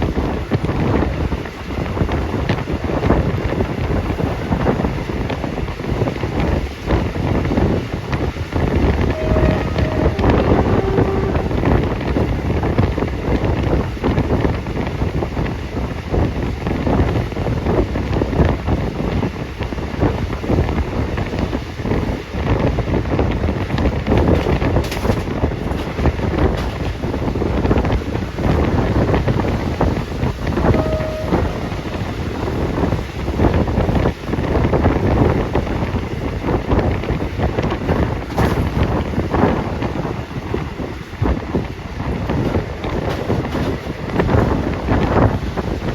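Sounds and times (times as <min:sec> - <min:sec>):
wind buffeting microphone: 0:00.0 - 0:45.9
short steady tones: 0:09.1 - 0:11.6, 0:30.5 - 0:32.6
short beep: 0:30.7 - 0:32.0.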